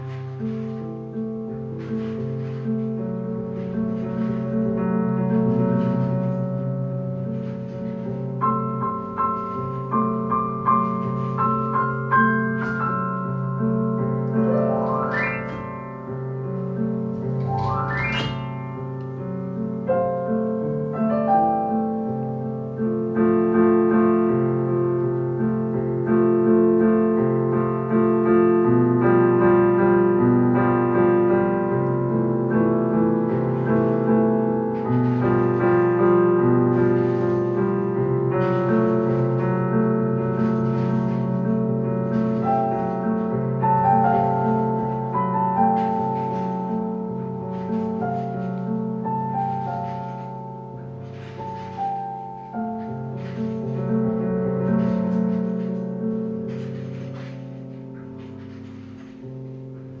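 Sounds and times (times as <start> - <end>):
child playing piano: 7.6 - 22.9.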